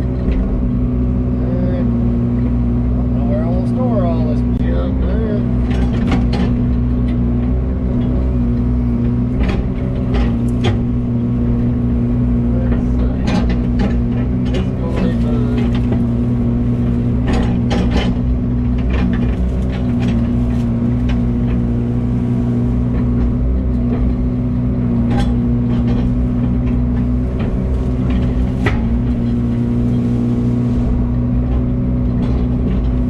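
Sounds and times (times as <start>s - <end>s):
excavator diesel engine running: 0.0s - 33.0s
branches cracking and snapping: 14.4s - 23.4s, 25.1s - 31.2s.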